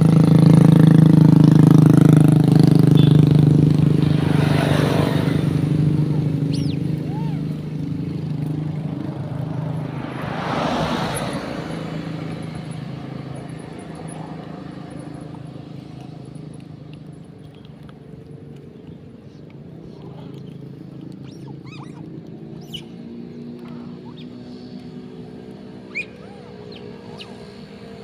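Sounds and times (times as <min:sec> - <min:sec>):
engine hum: 0:00.0 - 0:28.0
monkeys squealing: 0:06.0 - 0:07.7, 0:21.1 - 0:25.1, 0:25.7 - 0:27.8.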